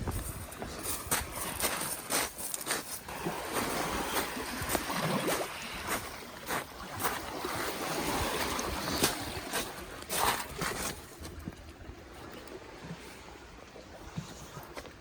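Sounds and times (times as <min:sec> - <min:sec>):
wind on microphone: 0:00.0 - 0:01.9
waves washing over rocky shore: 0:00.7 - 0:11.2.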